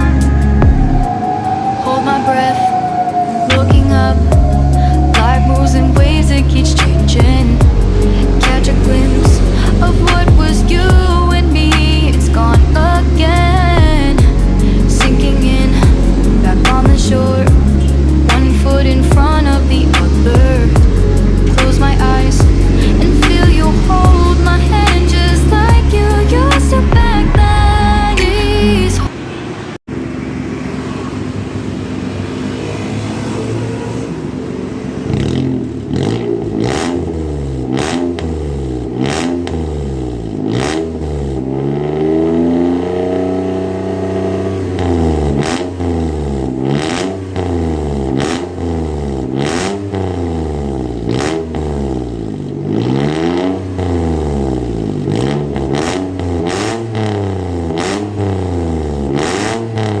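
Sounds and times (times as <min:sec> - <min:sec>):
exhaust cracks: 0:00.0 - 0:29.1
car engine revving: 0:00.0 - 1:00.0.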